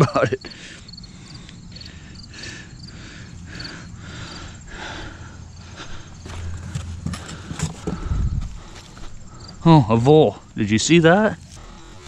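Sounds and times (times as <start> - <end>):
crickets chirping: 0.0 - 12.0
hands rummaging through soil: 6.2 - 8.2.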